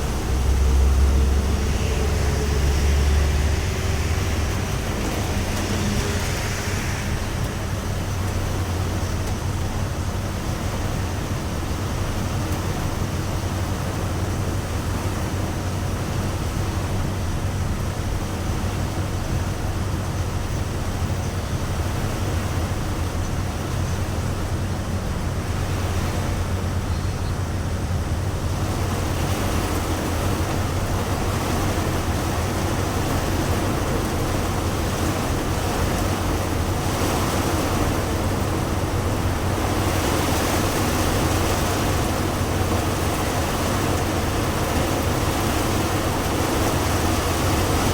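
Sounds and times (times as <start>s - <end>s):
low drone: 0.0s - 10.4s
heavy rain hiss: 0.0s - 47.9s.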